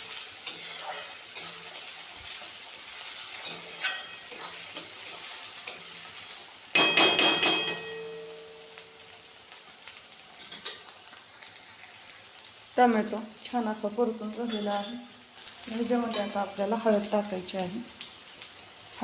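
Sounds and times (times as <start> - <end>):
vegetables sizzling in oil: 0.0 - 19.0
spatula scraping and stirring: 0.1 - 6.4, 14.5 - 16.4.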